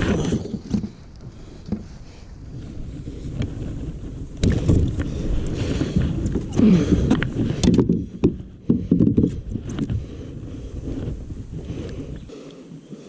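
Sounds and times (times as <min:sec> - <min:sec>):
bumps and clicks against kayak hull: 0:00.0 - 0:02.0, 0:04.4 - 0:10.2.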